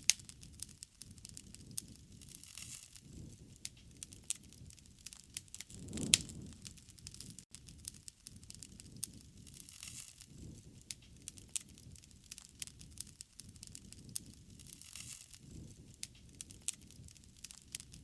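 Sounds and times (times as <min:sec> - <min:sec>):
fire popping and snapping: 0:00.0 - 0:18.0
low rumble of flame: 0:00.0 - 0:18.0
wood fire crackling: 0:00.0 - 0:18.0
hissing flare-up: 0:05.2 - 0:07.4.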